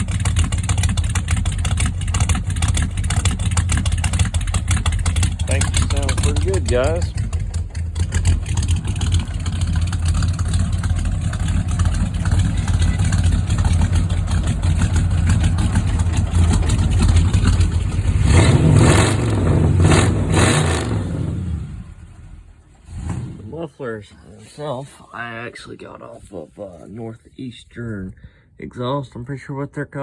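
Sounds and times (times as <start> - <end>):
engine revving: 0.0 - 23.7
car engine idle rumble: 0.0 - 25.7.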